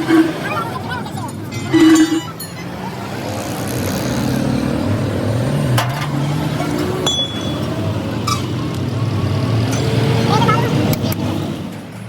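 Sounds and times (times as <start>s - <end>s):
engine running: 0.0s - 12.0s
sharp metallic clinks: 5.8s - 8.5s.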